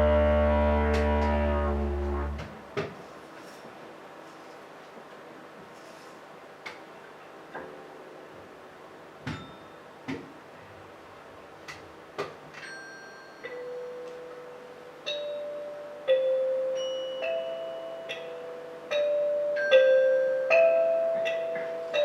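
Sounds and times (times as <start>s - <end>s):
held low note: 0.0s - 2.7s.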